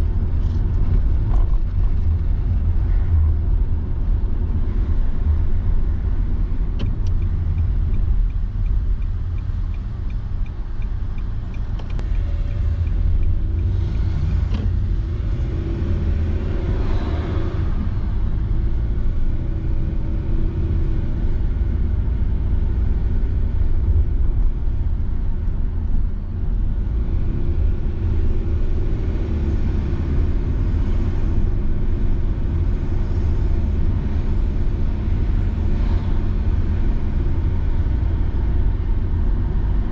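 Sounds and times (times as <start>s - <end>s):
car road and engine rumble: 0.0s - 39.9s
light even ticking: 6.8s - 12.2s.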